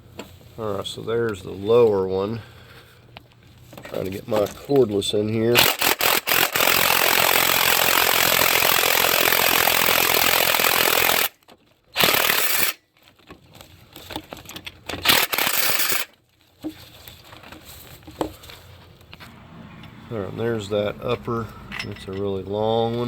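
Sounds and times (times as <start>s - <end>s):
cordless wrench running: 5.6s - 11.3s, 12.0s - 12.8s, 15.0s - 16.1s
faint metal clinks: 21.4s - 22.4s.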